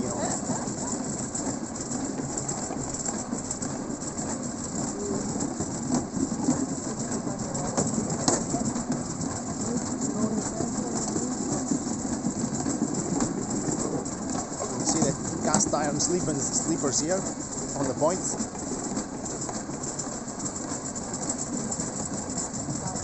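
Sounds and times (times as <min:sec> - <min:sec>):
wheels rattling on rails: 0:00.0 - 0:23.0.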